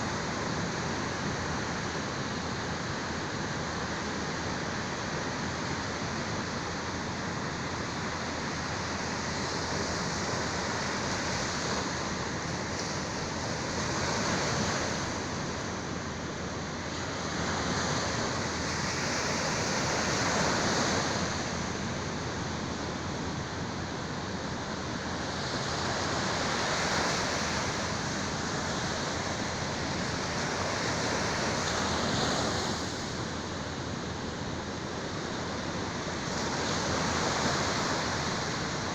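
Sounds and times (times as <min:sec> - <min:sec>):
sea waves washing onto shore: 0:16.8 - 0:23.5, 0:24.8 - 0:38.9.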